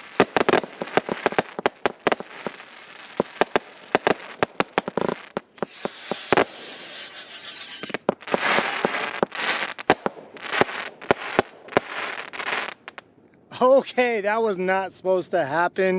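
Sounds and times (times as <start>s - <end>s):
firework bangs: 0.0s - 13.0s
firework crackle: 0.0s - 13.1s
firework whistle: 5.4s - 8.8s.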